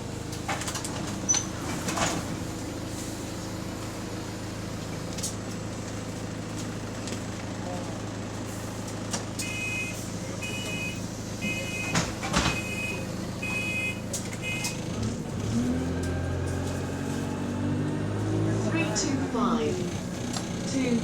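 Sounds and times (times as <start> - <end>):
bus engine idling: 0.0 - 21.0
door warning beeps: 9.4 - 14.8
bus doors thudding shut: 11.4 - 15.2.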